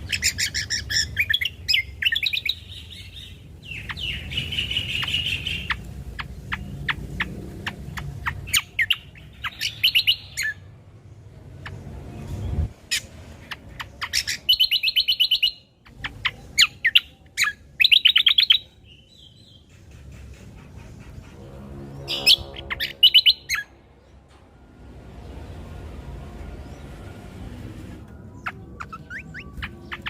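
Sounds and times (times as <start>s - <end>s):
bird chirping and trilling: 0.0s - 10.7s, 11.5s - 19.8s, 21.7s - 24.1s, 28.1s - 30.0s.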